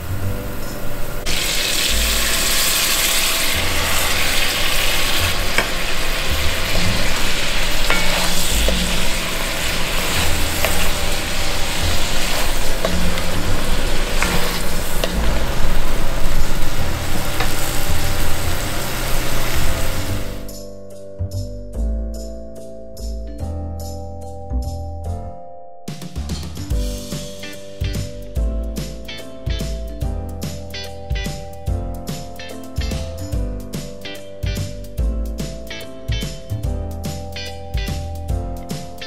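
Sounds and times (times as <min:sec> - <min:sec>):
food sizzling in a pan: 0:00.0 - 0:20.5.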